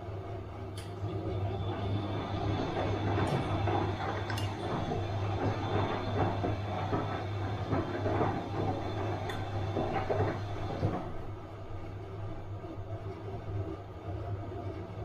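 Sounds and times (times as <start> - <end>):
washing machine motor hum: 0.0 - 15.0
water swishing in drum: 1.3 - 11.8.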